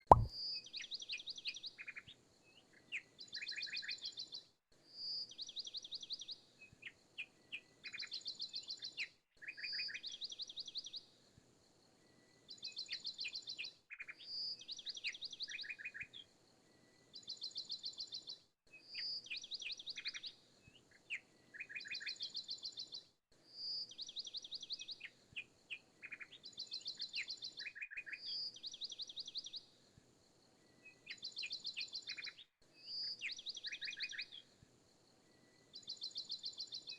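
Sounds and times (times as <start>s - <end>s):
bird song chirps and trills: 20.9s - 29.7s, 30.9s - 34.5s, 35.7s - 36.9s.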